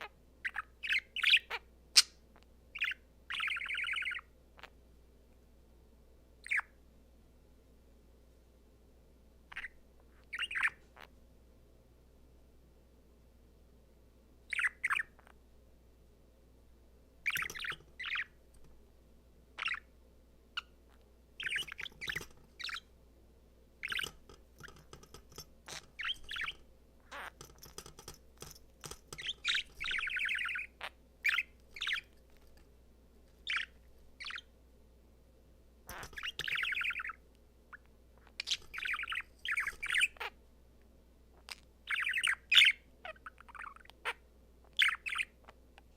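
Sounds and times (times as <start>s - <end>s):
budgie chirping and warbling: 0.0s - 2.1s, 2.8s - 4.3s, 6.4s - 6.7s, 9.5s - 11.1s, 14.5s - 15.3s, 17.2s - 18.4s, 19.6s - 19.9s, 21.4s - 22.9s, 23.8s - 32.5s, 33.4s - 34.5s, 35.9s - 40.3s, 41.4s - 44.2s, 44.8s - 45.4s.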